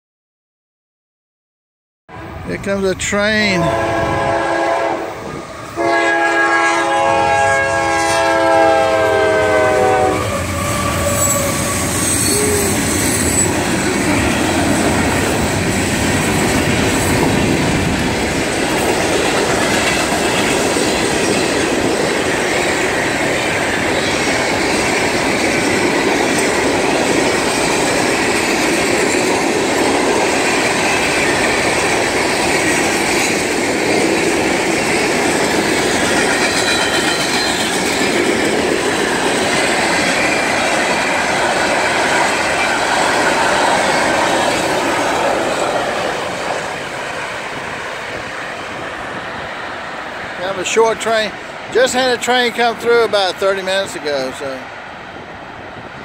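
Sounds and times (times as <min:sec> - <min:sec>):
train rumbling past: 0:02.1 - 0:56.0
locomotive air horn: 0:03.6 - 0:05.2, 0:05.8 - 0:12.7
wheels clacking over rail joints: 0:10.6 - 0:47.0.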